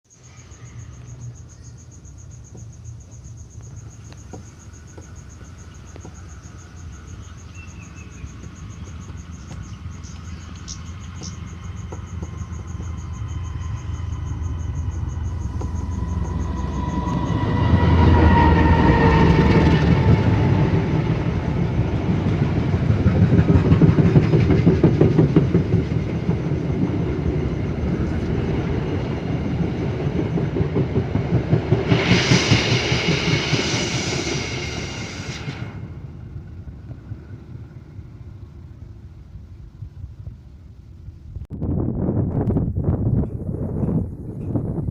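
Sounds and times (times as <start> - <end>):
diesel locomotive engine rumble: 0.1 - 44.9
train wheels clacking over rail joints: 2.3 - 36.1.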